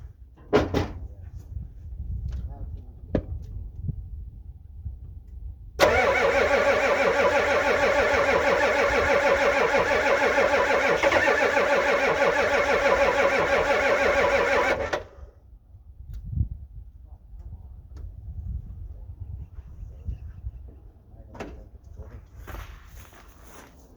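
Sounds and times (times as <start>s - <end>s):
diesel engine cranking on starter: 5.8s - 15.3s.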